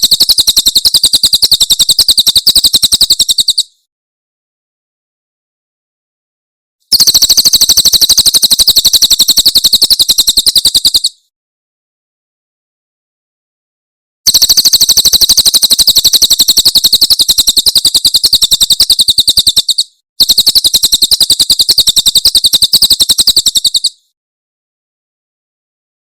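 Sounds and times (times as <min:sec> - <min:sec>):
bird rapid trill: 0:00.0 - 0:03.8, 0:06.9 - 0:11.2, 0:14.3 - 0:24.1.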